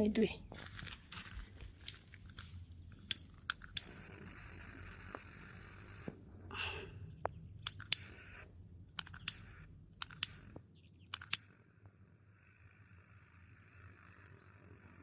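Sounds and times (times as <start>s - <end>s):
lighter clicking: 9.0s - 10.5s.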